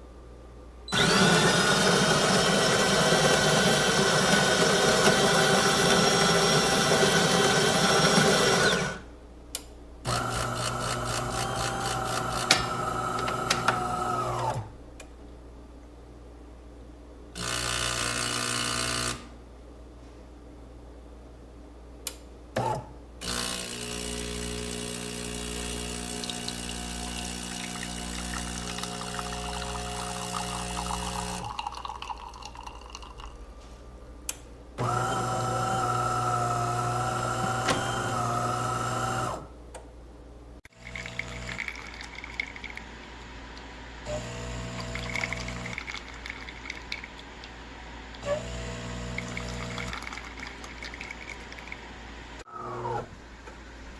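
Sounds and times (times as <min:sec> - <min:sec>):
espresso machine motor humming: 0:00.9 - 0:09.1, 0:10.1 - 0:14.7, 0:17.4 - 0:19.3, 0:23.2 - 0:31.9, 0:34.8 - 0:39.5, 0:40.8 - 0:42.0, 0:44.1 - 0:45.8, 0:48.3 - 0:49.9
liquid pouring and trickling: 0:28.3 - 0:33.5, 0:40.9 - 0:42.9, 0:45.1 - 0:47.5, 0:49.8 - 0:51.8.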